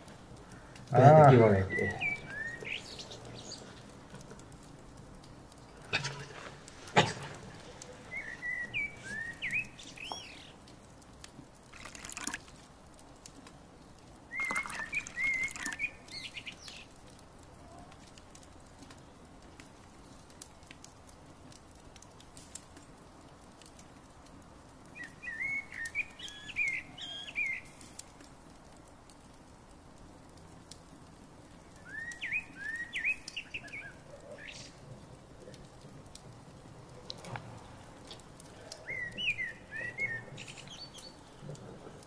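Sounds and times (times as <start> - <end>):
bird warbling chirps: 1.5 - 3.7, 8.1 - 10.5, 14.3 - 16.8, 38.8 - 41.3.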